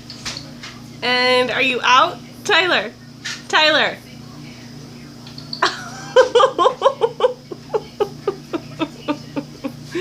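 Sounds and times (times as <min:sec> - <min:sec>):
person laughing: 0:05.6 - 0:10.0.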